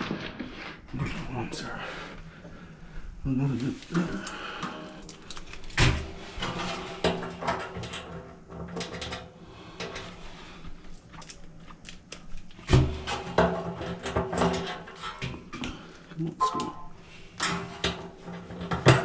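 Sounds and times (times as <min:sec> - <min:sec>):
metal parts clattering: 0:03.8 - 0:08.1.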